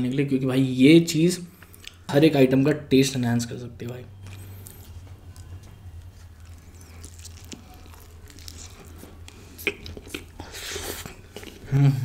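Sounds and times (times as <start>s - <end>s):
low steady hum: 0.0s - 12.0s
biting and chewing food: 4.2s - 11.7s.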